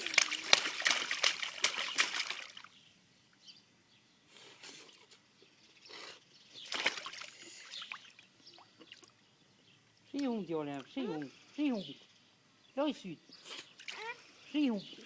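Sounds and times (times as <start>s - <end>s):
water splashing and sloshing: 0.0s - 2.8s, 6.6s - 9.2s.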